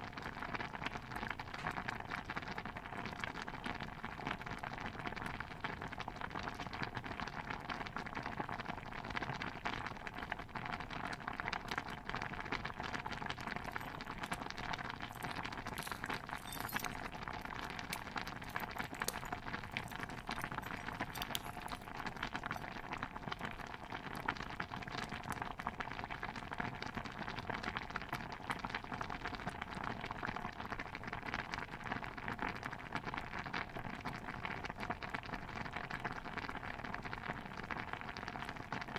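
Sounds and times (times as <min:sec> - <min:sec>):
simmering stew bubbling and popping: 0:00.0 - 0:38.9.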